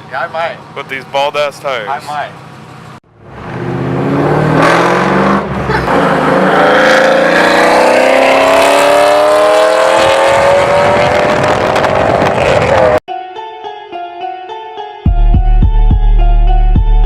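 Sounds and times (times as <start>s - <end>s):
car engine accelerating hard: 3.2s - 13.0s.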